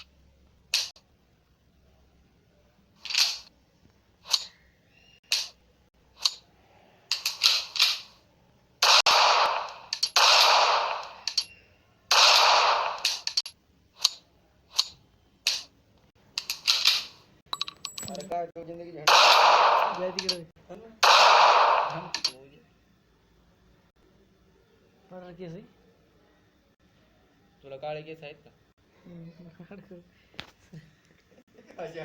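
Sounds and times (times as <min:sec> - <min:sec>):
gunshots: 0:08.8 - 0:11.5, 0:12.1 - 0:13.4, 0:19.1 - 0:20.4, 0:21.0 - 0:22.4
sharp mechanical pistol clicks: 0:08.8 - 0:15.7.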